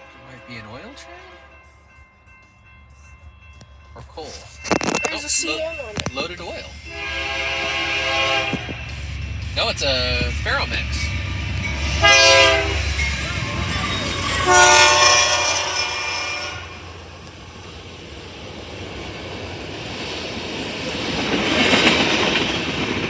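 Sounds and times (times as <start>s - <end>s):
train rumbling and clattering on track: 0.0s - 23.0s
locomotive air horn blasts: 6.9s - 8.8s, 12.0s - 12.9s, 14.4s - 16.8s.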